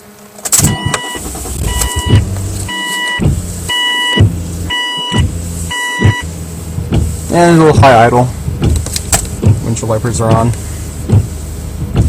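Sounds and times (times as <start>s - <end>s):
car engine idling: 0.0s - 12.0s
dashboard warning chime: 0.6s - 6.3s.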